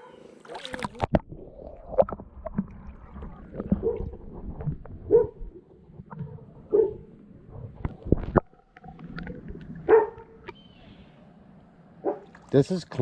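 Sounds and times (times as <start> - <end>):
water sloshing in a pool: 0.0 - 10.8
dog barking: 5.1 - 5.4, 6.7 - 7.1, 9.9 - 10.3, 12.0 - 12.3.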